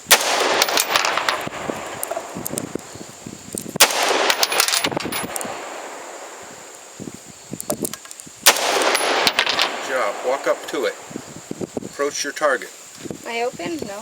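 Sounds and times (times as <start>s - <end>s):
rifle shots with echo: 0.0s - 3.2s, 3.8s - 7.0s, 8.4s - 11.6s
faint gunshot report: 0.1s - 3.1s, 3.8s - 6.9s, 8.5s - 11.5s.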